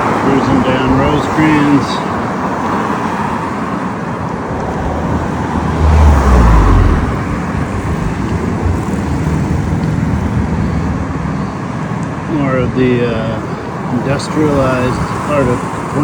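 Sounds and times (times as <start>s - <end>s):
busy street traffic: 0.0s - 16.0s
vehicle passing close: 0.0s - 16.0s.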